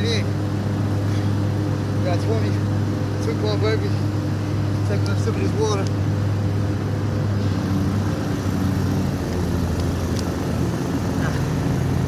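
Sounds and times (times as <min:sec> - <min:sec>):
lawn mower engine running: 0:06.0 - 0:12.0.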